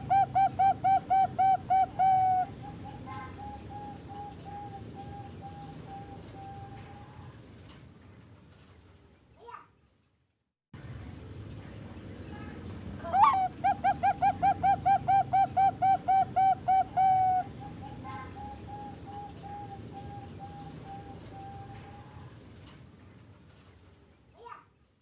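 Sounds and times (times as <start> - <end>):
dove cooing: 0.0 - 7.3, 13.0 - 22.4.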